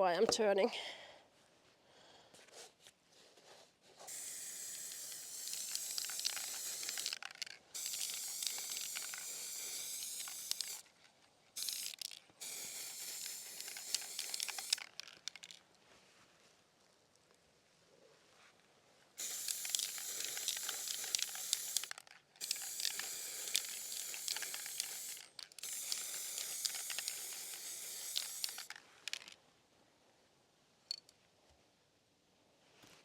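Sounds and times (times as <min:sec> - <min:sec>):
spray paint can hissing: 0:04.1 - 0:10.9, 0:11.6 - 0:15.6, 0:19.2 - 0:29.4.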